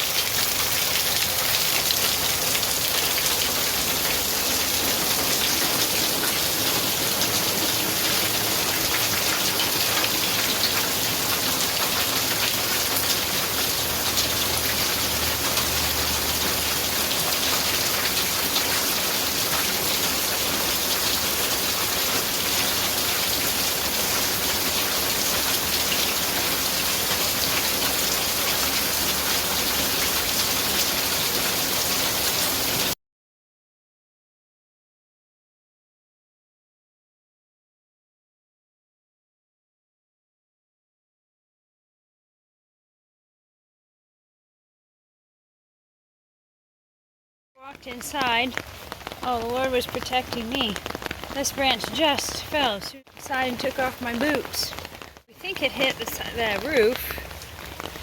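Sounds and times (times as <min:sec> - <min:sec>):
steady rain falling: 0:00.0 - 0:33.0, 0:47.6 - 0:58.0.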